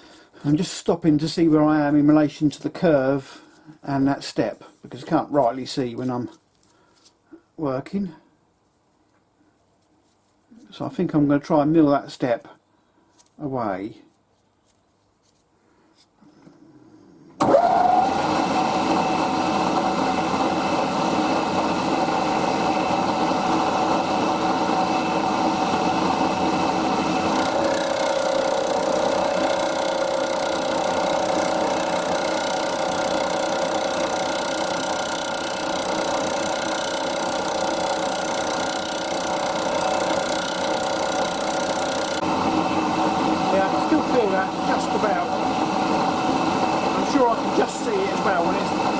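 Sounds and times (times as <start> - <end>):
milling machine spindle whine: 17.4 - 48.9.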